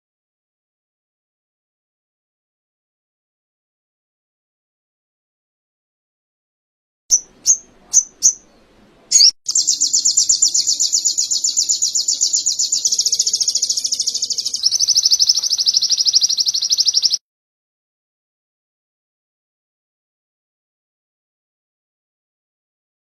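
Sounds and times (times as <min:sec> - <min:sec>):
sunbird singing chirps and trills: 0:07.1 - 0:17.2.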